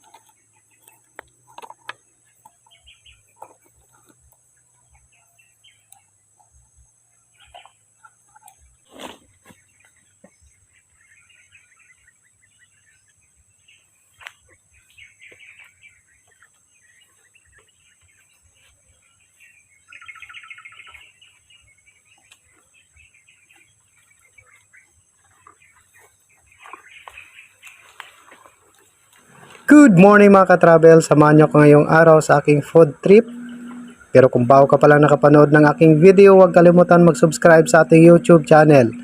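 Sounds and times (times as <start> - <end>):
small birds chirping: 0.0 - 39.0
rapid bird chattering: 29.5 - 39.0.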